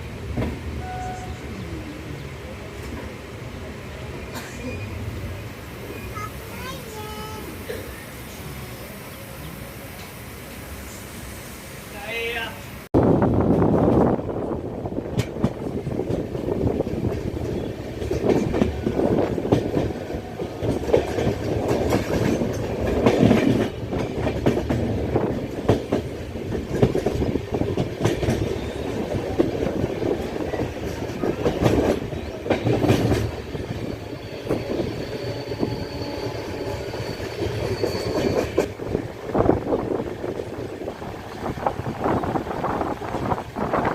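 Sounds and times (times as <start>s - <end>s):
train rumble: 0.0s - 43.9s
wheels clattering over rail joints: 15.1s - 34.9s.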